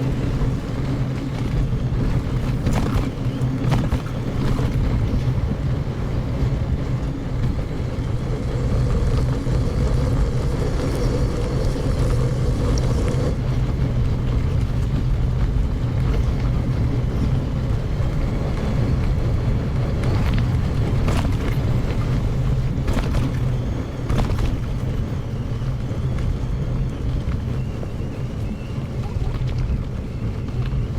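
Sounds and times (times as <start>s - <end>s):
tyres rumbling on gravel: 0.0s - 30.9s
wind buffeting microphone: 0.0s - 30.9s.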